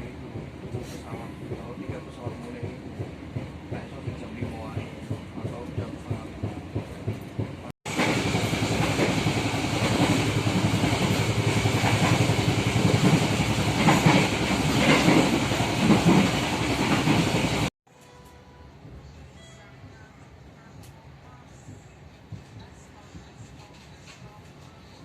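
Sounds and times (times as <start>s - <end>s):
train wheels rumbling on rails: 0.0s - 17.7s.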